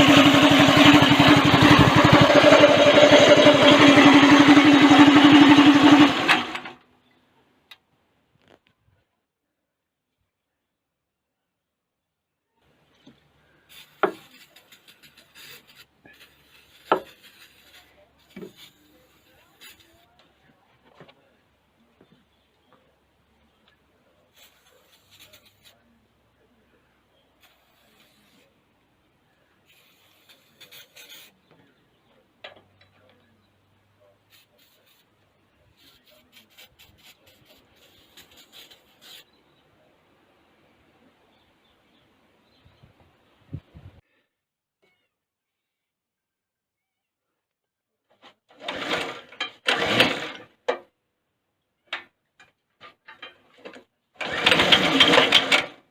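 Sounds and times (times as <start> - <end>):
faint rustling and scraping: 12.7 - 28.7
scraping and rubbing: 13.6 - 20.2, 24.3 - 25.9, 29.6 - 31.5, 34.3 - 39.4.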